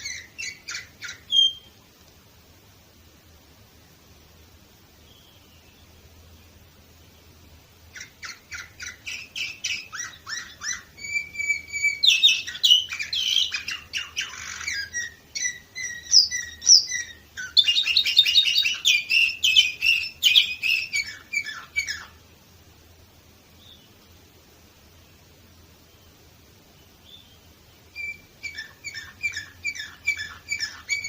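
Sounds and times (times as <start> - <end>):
canary singing: 0.0 - 1.9, 5.0 - 22.3, 26.7 - 31.0.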